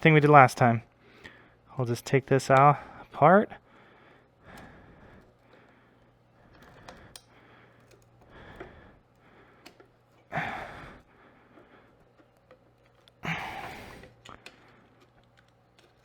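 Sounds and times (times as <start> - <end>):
faint handling sounds: 0.0 - 16.0
breathy exhale: 13.2 - 14.1.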